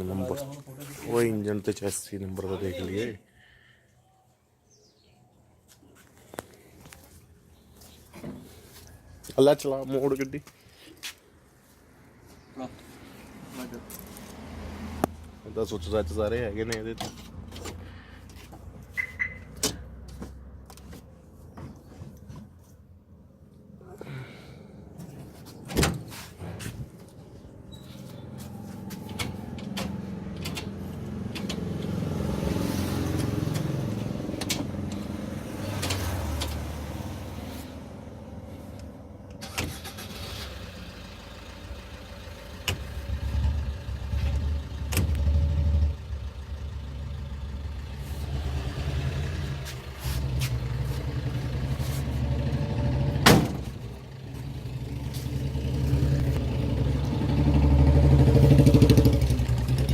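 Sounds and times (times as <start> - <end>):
engine revving: 28.1 - 38.5, 42.7 - 59.9.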